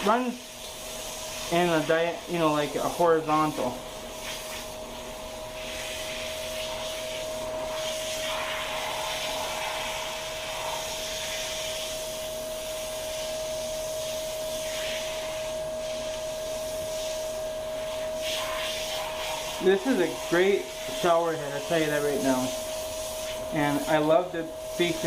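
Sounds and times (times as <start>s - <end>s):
shower head spraying water: 0.0s - 25.0s.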